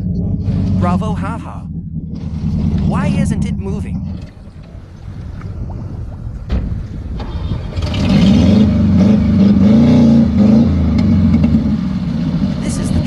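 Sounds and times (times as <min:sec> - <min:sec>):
car engine revving hard: 0:07.2 - 0:13.0.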